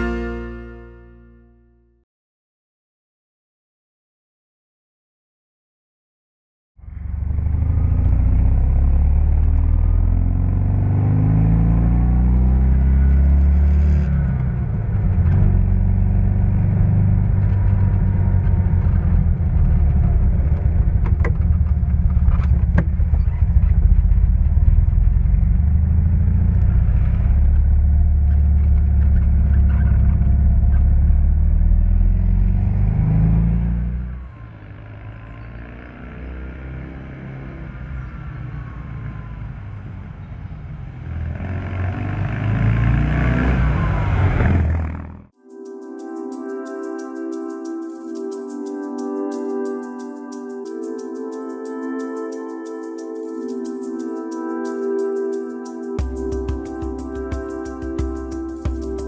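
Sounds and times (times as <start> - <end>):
car engine revving: 6.8 - 45.4.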